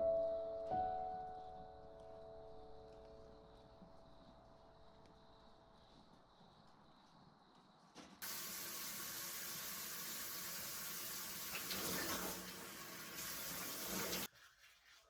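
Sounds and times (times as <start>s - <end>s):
tap water running into sink: 8.2s - 14.3s.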